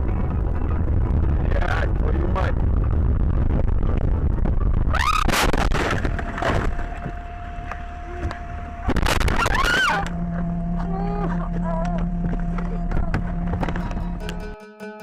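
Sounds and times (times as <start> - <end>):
high pitched squeal: 4.8 - 10.9
vehicle crash impact crunching: 5.0 - 10.5.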